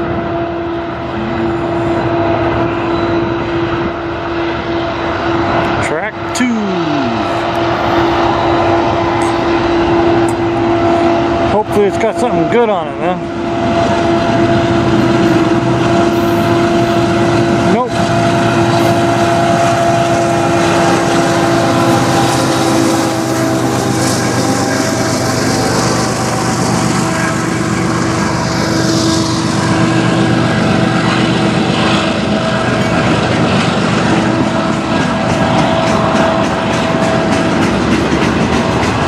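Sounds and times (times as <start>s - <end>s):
freight train rumbling past: 0.0s - 39.0s
steady tone: 0.0s - 39.0s.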